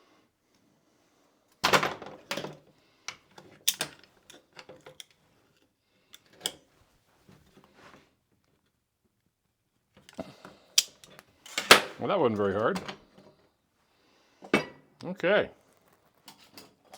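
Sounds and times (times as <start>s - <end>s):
metal parts clicking and knocking: 3.3s - 5.2s.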